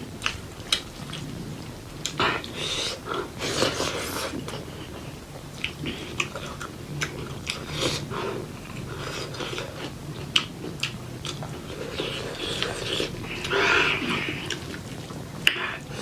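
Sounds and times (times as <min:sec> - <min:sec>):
chewing and mouth smacks: 0:08.7 - 0:16.0.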